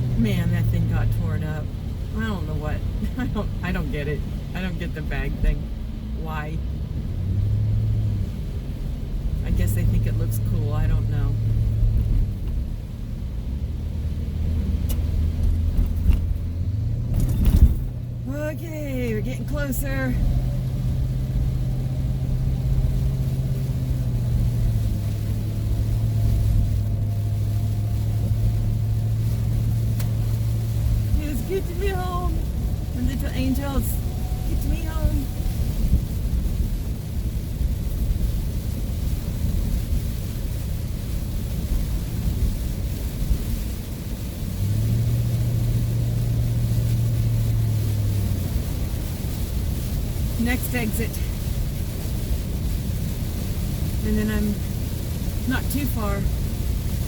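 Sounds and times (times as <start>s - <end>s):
van engine and road noise: 0.0s - 57.0s
low even drone: 20.2s - 37.1s.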